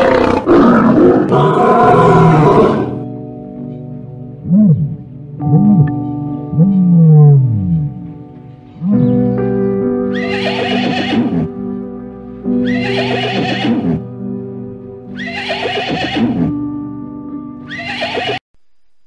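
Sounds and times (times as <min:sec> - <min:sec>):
horse neighing: 0:00.0 - 0:03.0, 0:10.1 - 0:11.5, 0:12.6 - 0:14.0, 0:15.1 - 0:16.6, 0:17.7 - 0:18.4
background music with held notes: 0:00.0 - 0:18.4.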